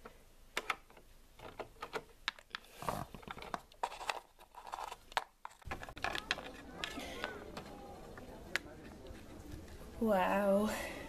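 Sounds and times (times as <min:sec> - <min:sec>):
plastic figurines tapping on wood: 0:05.6 - 0:08.7.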